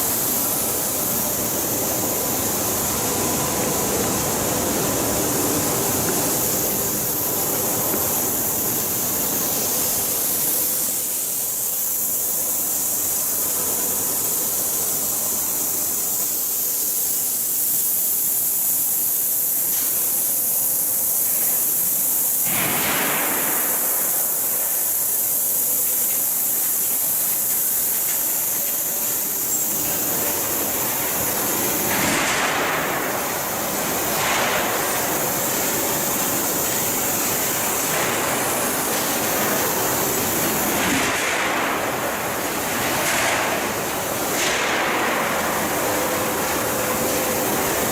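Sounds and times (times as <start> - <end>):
faint machine hum: 0.0 - 47.9
machine hiss: 0.0 - 47.9.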